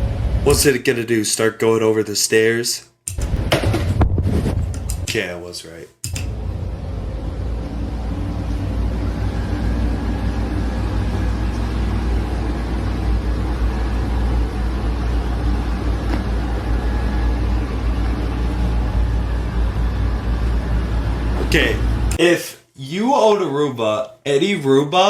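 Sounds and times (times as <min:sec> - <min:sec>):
low rumble: 0:00.0 - 0:00.7, 0:06.2 - 0:22.2.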